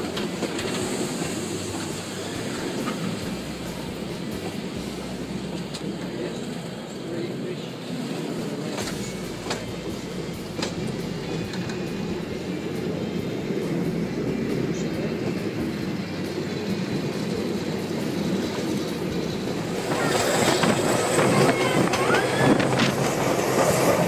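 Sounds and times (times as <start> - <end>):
train wheels clattering on rails: 0.0 - 7.1, 7.8 - 24.0.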